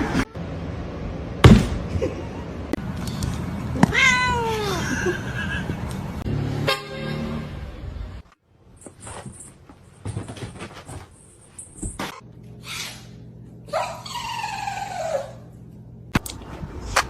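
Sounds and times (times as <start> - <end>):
cat meowing: 3.8 - 5.2
low steady hum: 11.1 - 17.0.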